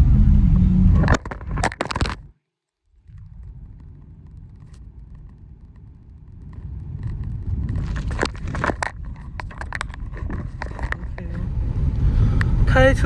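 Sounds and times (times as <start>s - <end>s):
car rumbling on the move: 0.0s - 2.3s, 2.9s - 13.0s
clicks and knocks: 1.0s - 2.3s, 3.8s - 11.4s.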